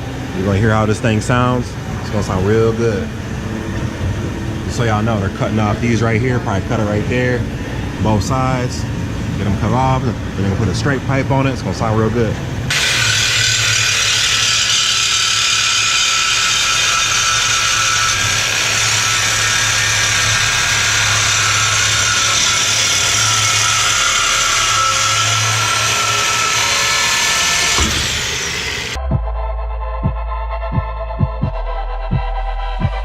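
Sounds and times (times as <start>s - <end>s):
power cutting tool cutting pipe: 12.7s - 29.0s
knock: 27.8s - 28.1s
electronic music with low beats: 29.0s - 33.0s.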